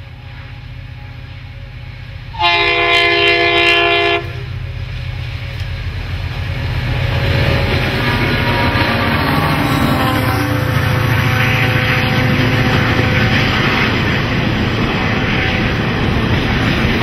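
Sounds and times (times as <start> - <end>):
locomotive chime horn blast: 2.2 - 4.6, 6.6 - 14.4
locomotive engines running: 4.2 - 17.0.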